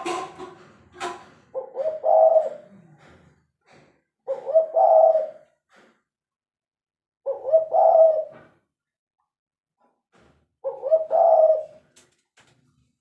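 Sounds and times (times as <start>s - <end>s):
dove cooing: 0.0s - 3.2s, 4.3s - 5.5s, 7.3s - 8.6s, 10.6s - 12.0s.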